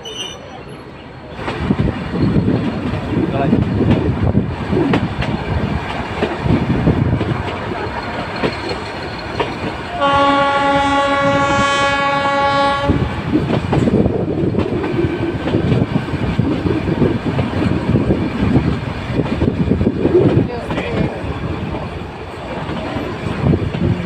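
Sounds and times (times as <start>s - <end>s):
train rumbling on rails: 0.0s - 24.0s
train horn blast: 9.9s - 13.2s.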